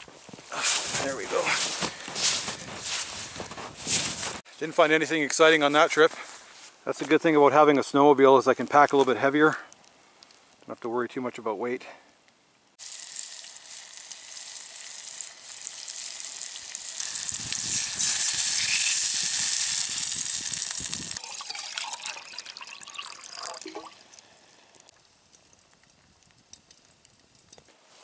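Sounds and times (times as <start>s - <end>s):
food sizzling in a pot: 12.8s - 24.9s.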